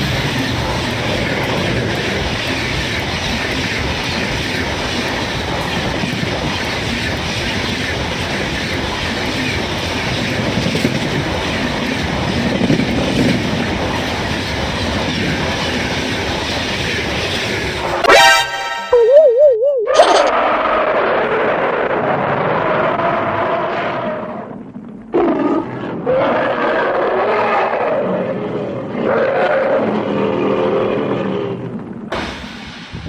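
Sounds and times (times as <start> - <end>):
train wheels clattering on rails: 0.0 - 18.0, 32.1 - 33.0.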